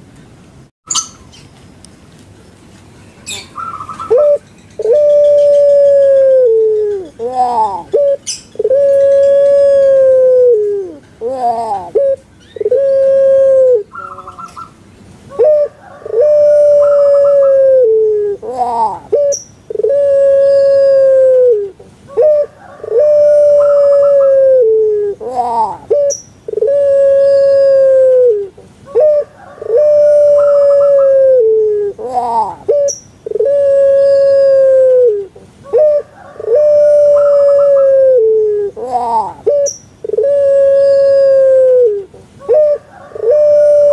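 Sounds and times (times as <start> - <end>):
dove cooing: 3.3 - 43.9.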